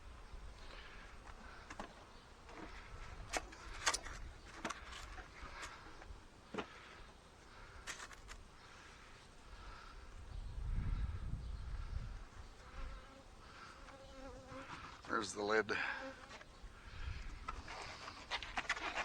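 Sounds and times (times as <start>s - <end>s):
clicks and knocks of hive parts: 1.1s - 7.0s, 7.7s - 8.5s
bees buzzing faintly: 4.4s - 17.4s.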